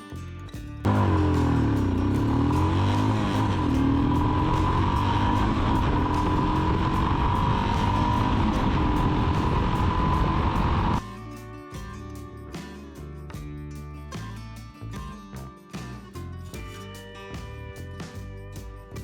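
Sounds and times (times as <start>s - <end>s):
high whine: 0.9s - 11.0s
motorcycle engine running: 0.9s - 11.0s.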